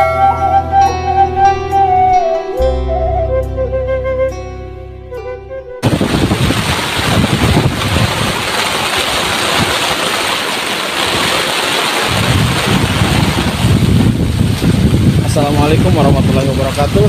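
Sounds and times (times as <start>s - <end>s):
flute tune: 0.0s - 5.9s
heavy rain pouring: 5.8s - 17.0s
wind buffeting microphone: 5.8s - 17.0s.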